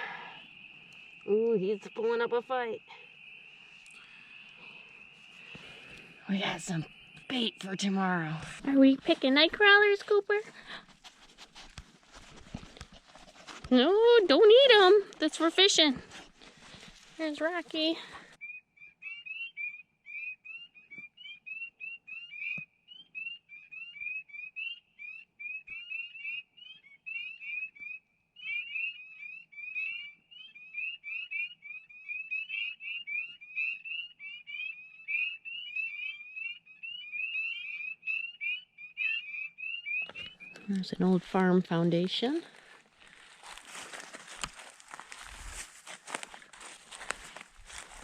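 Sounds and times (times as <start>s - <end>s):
frogs peeping: 0.0s - 48.0s.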